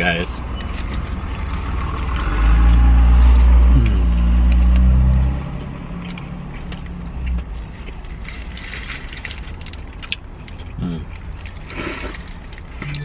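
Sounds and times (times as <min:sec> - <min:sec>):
vehicle engine rumbling: 0:00.0 - 0:13.0
small clicks and rustles: 0:04.4 - 0:13.0.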